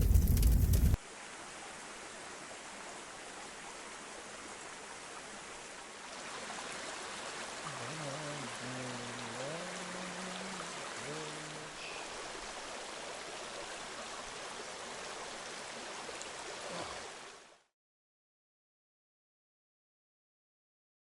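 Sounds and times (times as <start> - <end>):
loud low rumble: 0.0 - 1.0
stream water flowing: 0.0 - 17.7.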